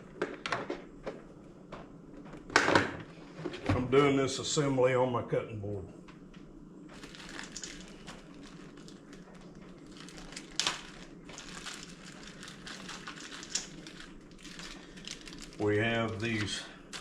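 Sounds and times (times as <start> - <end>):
plastic parts clicking: 12.7 - 15.5.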